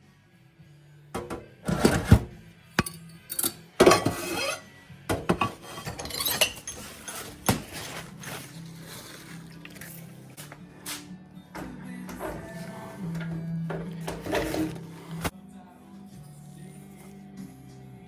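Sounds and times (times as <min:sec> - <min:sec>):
faint background music: 0:00.0 - 0:18.0
metal tools clinking and knocking: 0:02.8 - 0:08.4
scraping rustles: 0:05.2 - 0:10.1, 0:12.2 - 0:15.3.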